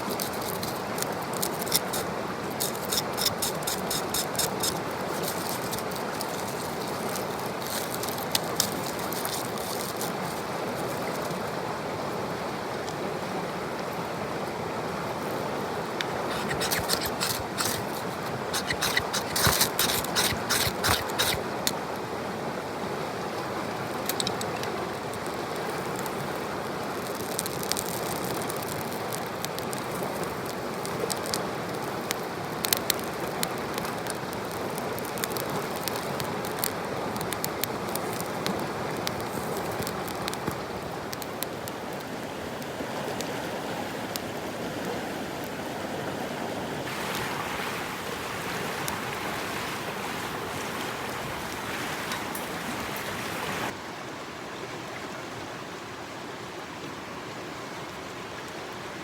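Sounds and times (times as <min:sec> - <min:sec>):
stream flowing: 0:00.0 - 0:59.0.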